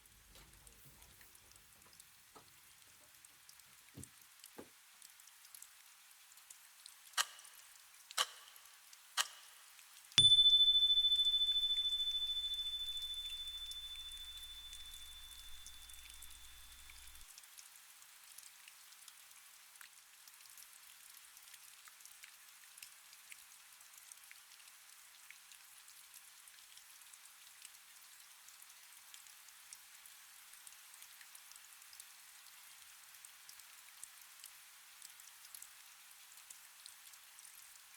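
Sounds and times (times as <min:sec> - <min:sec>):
light rain hiss: 0:00.0 - 0:19.3
loud water drips: 0:10.2 - 0:17.2
low hum: 0:10.2 - 0:17.2
thin high tone: 0:10.2 - 0:17.2.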